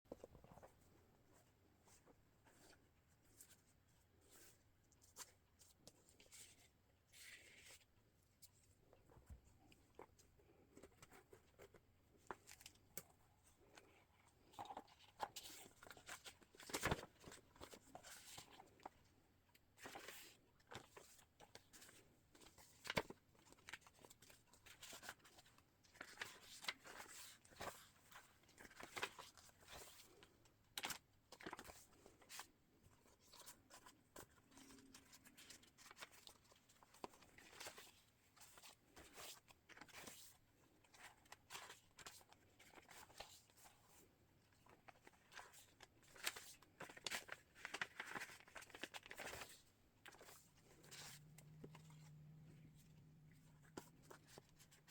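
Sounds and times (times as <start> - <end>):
paper pages rustling: 14.4 - 19.0, 44.6 - 54.9.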